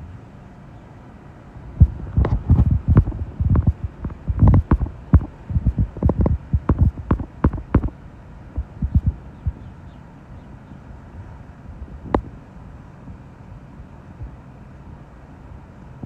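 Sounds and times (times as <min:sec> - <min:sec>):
wind buffeting microphone: 0:01.6 - 0:09.8.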